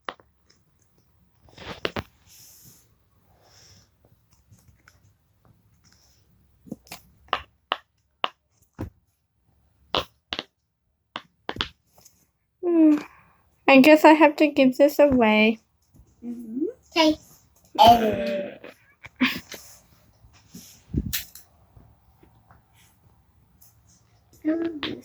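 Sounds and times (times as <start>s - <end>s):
fidget toy bubbles popping: 10.0s - 10.5s.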